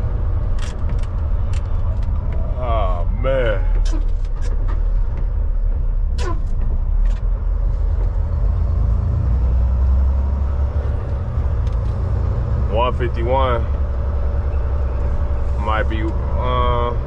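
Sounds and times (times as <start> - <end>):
diesel truck engine rumble: 0.0 - 17.0.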